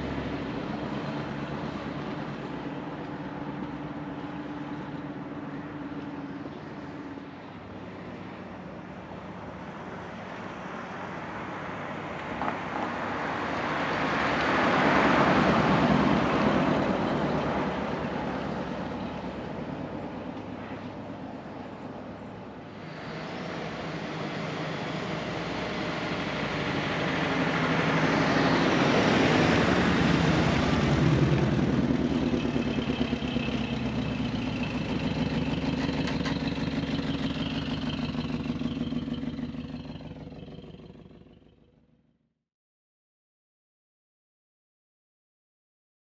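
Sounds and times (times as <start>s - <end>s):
road noise: 0.0s - 42.1s
car engine running: 22.5s - 42.0s.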